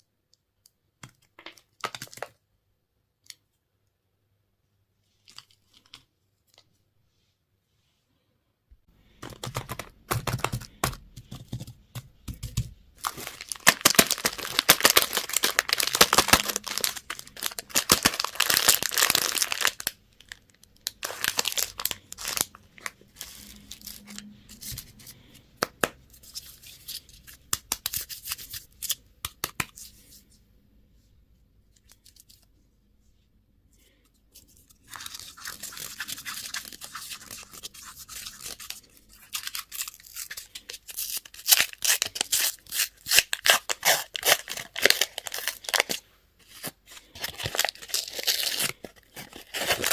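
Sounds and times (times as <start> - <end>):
plastic wrappers crinkling: 13.0 - 24.9, 34.4 - 49.9.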